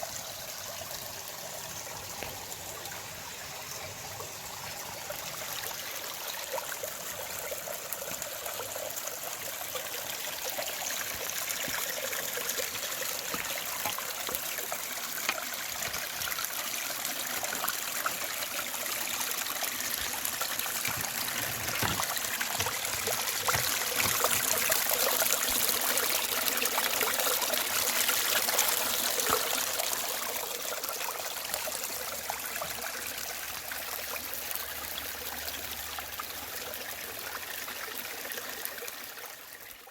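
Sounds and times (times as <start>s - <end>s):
creek babbling over rocks: 0.0s - 39.9s.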